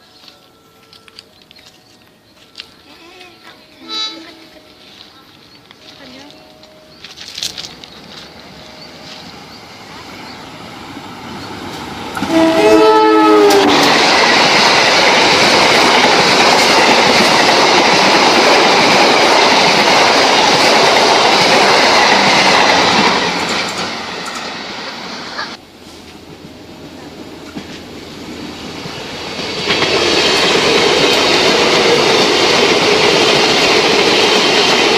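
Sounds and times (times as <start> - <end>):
train horn chord: 3.7 - 4.6, 12.2 - 14.0
train wheels rushing on rails: 6.9 - 34.9.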